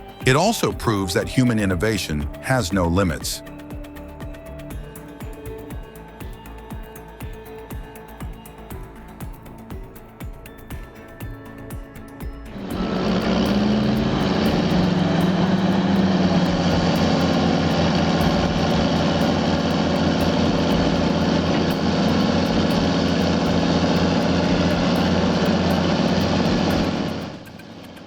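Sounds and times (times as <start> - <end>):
loud pulsing engine drone: 12.5 - 28.0.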